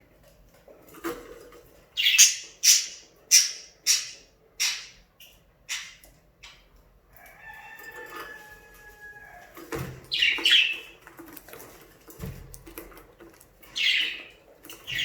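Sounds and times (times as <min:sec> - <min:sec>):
budgerigars squawking: 0:02.0 - 0:05.0, 0:05.7 - 0:06.0.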